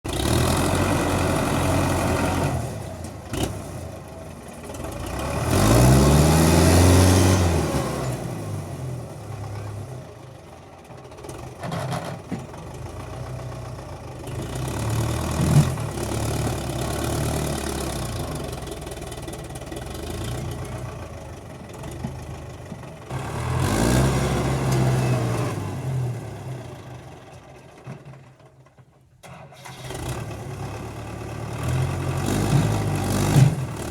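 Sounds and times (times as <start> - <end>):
tractor engine revving: 0.1 - 9.5, 14.2 - 27.2, 29.2 - 33.9.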